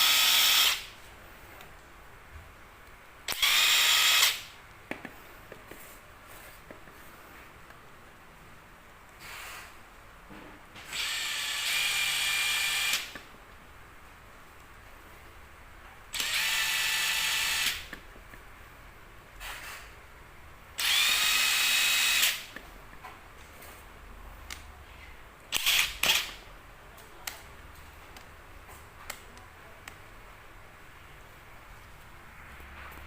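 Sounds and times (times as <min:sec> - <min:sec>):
impact wrench whining: 0:00.0 - 0:00.9, 0:03.3 - 0:04.6, 0:10.8 - 0:13.2, 0:16.2 - 0:17.9, 0:20.8 - 0:22.6, 0:25.5 - 0:26.4.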